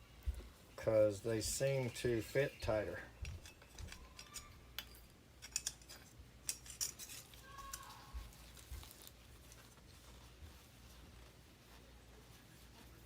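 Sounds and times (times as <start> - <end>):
small metal parts clinking: 3.2 - 8.0.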